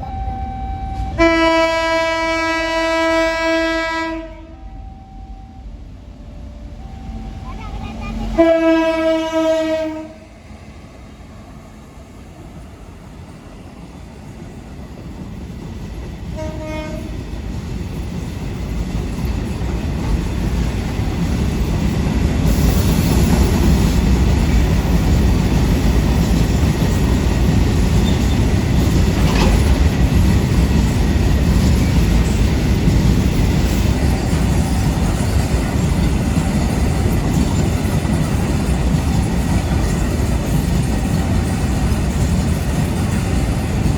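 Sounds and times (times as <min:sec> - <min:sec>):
locomotive horn: 0:00.0 - 0:05.7, 0:08.2 - 0:10.3, 0:16.4 - 0:17.2
train rumble: 0:00.0 - 0:43.9
wheels clattering over rail joints: 0:17.5 - 0:43.9.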